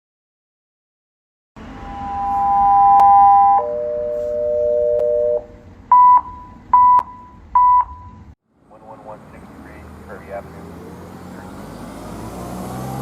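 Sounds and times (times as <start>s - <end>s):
two-note alert tones: 1.6s - 6.3s
short beeps: 1.7s - 8.2s.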